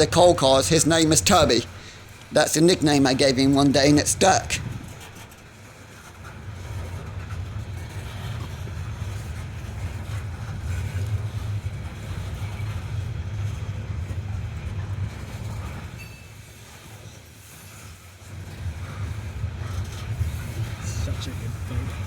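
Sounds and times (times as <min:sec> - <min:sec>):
train cars rumbling past: 0:00.0 - 0:22.0.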